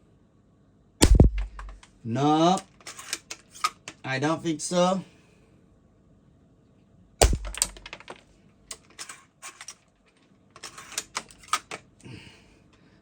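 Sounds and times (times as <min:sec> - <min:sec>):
mechanical clicks and rattles: 0:01.0 - 0:01.9, 0:07.2 - 0:09.8
rifle bolt clack: 0:01.0 - 0:01.9, 0:07.2 - 0:08.9.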